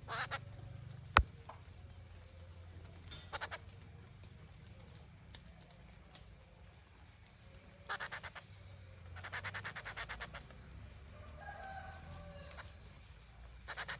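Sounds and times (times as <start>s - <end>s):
insect trill: 0.0s - 13.9s
bird harsh rattling calls: 0.1s - 0.4s, 3.2s - 3.6s, 7.9s - 8.4s, 9.2s - 10.4s, 13.6s - 13.9s.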